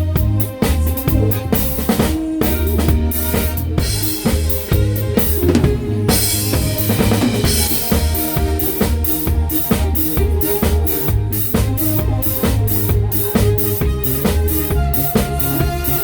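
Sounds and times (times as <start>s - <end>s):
live band playing disco: 0.0s - 16.0s.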